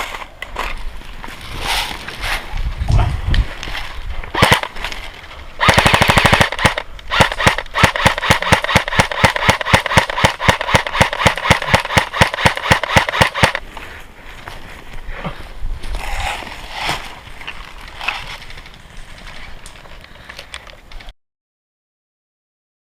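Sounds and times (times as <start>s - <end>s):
airsoft gun firing: 4.4s - 4.8s, 5.6s - 13.6s.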